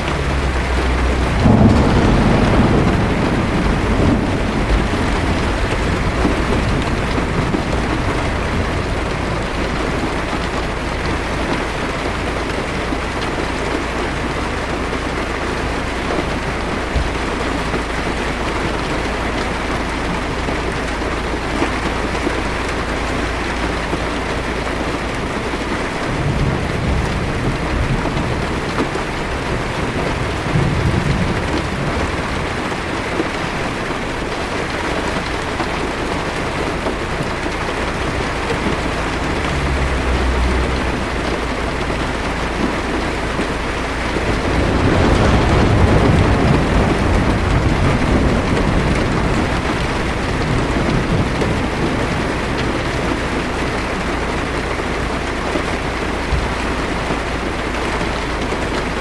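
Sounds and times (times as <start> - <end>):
heavy rain on a car: 0.0 - 59.0
thunder rumbling: 0.0 - 59.0.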